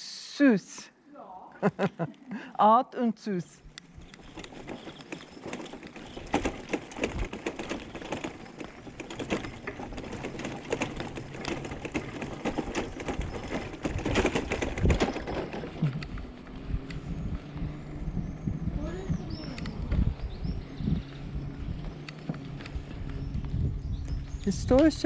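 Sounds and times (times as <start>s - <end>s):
bicycle rattling over paving: 3.7s - 25.0s.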